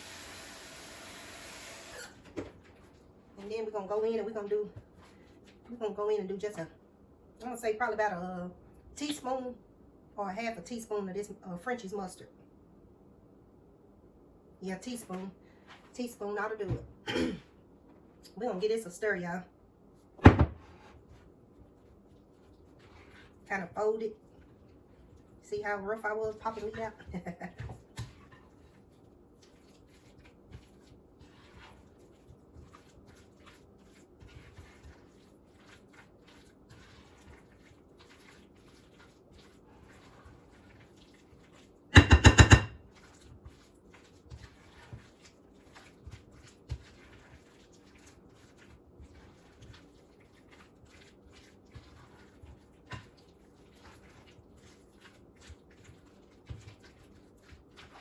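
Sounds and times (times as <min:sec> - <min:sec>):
spoon stirring in a bowl: 0:15.0 - 0:17.0, 0:21.0 - 0:58.0.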